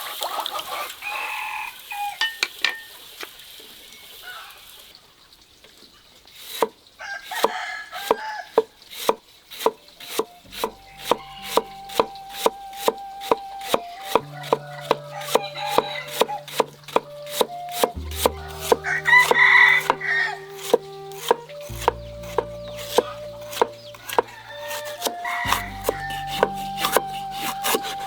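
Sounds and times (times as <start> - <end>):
knife chopping on cutting board: 9.0 - 20.0, 20.6 - 28.0
rooster crowing: 23.8 - 26.2.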